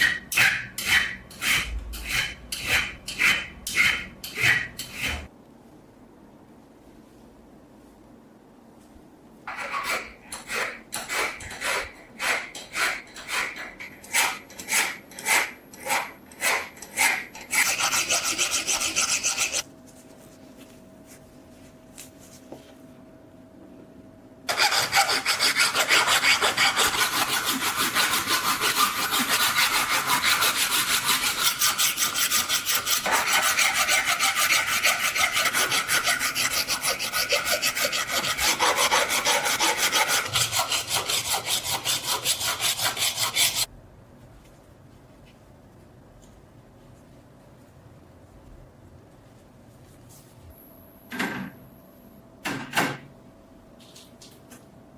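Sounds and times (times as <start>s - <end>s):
abrasive rubbing on steel knife: 16.4s - 19.6s
faint hum: 17.3s - 28.1s, 43.6s - 54.9s.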